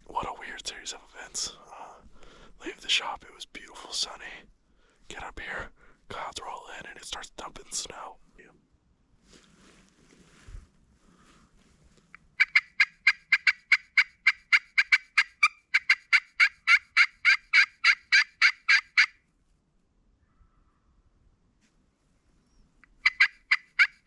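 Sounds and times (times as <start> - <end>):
turkey yelps: 12.4 - 19.1, 23.0 - 24.0.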